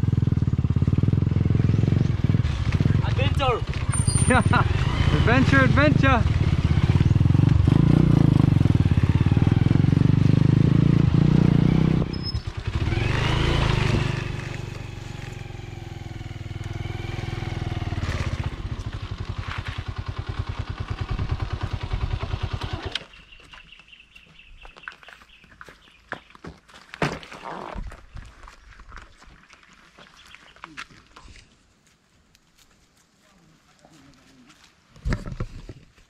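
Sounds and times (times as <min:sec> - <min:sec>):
motorcycle engine revving: 0:00.0 - 0:23.3.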